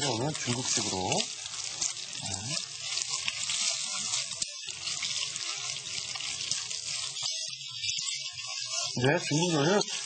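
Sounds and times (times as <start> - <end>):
meat sizzling in hot oil: 0.0 - 10.0
wooden spoon stirring: 0.0 - 10.0.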